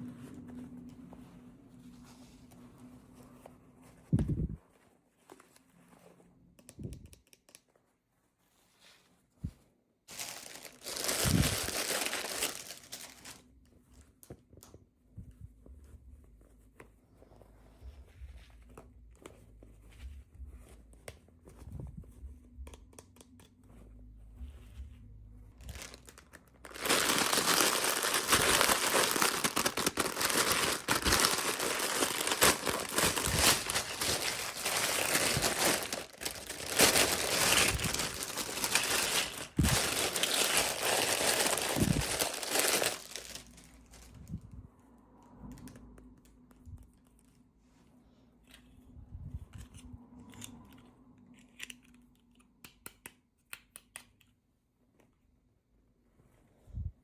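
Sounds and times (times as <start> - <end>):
packaging crinkling and tearing: 10.1 - 13.5, 25.6 - 44.3
small clicks and handling: 49.5 - 54.4.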